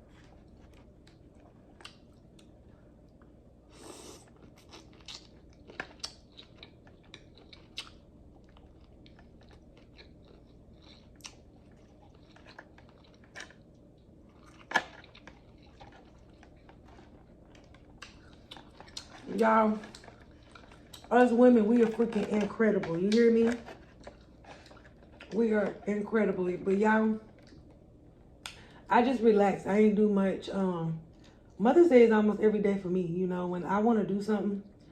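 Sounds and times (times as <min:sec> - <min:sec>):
chewing and crunching seafood: 0:00.0 - 0:26.0, 0:27.2 - 0:28.8.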